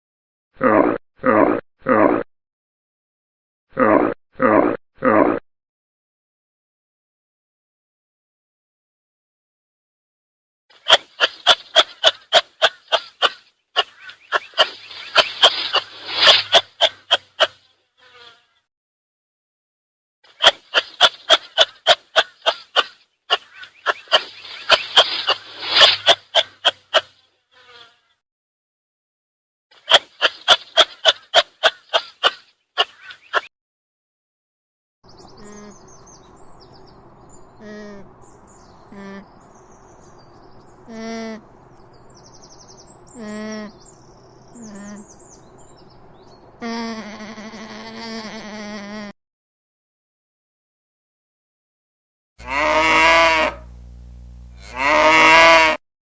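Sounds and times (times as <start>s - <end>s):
sharp piercing animal calls: 10.8s - 18.2s, 20.3s - 27.8s, 52.4s - 53.7s
high bird chirps: 10.9s - 17.5s, 20.4s - 26.8s
short sharp animal calls: 20.4s - 27.9s
short pitched animal calls: 52.4s - 53.7s.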